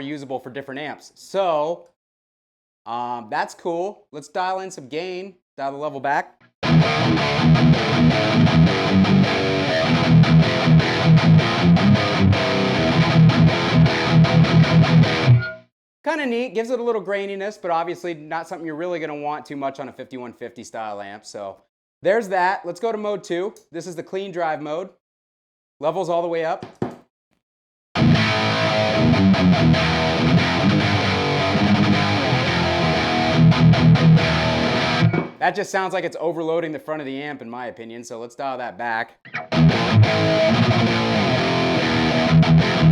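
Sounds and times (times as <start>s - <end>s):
distorted electric guitar chugging: 6.6s - 15.6s, 28.0s - 35.4s, 39.3s - 42.9s.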